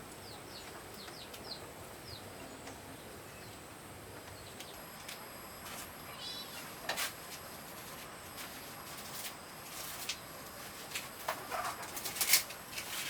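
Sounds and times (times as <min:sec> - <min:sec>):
bird chirp: 0:00.1 - 0:03.6, 0:06.0 - 0:06.8.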